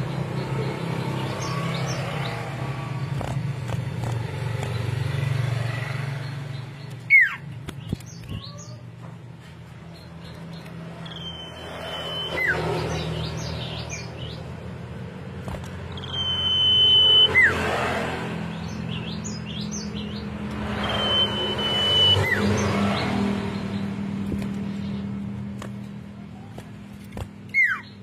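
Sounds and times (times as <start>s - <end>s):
bird singing whistles and twitters: 11.0s - 14.2s, 15.9s - 17.6s, 18.9s - 23.0s, 27.5s - 28.0s.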